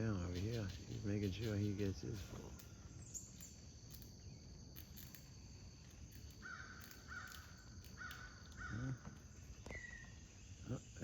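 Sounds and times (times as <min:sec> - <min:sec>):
crows cawing: 0:06.4 - 0:09.2.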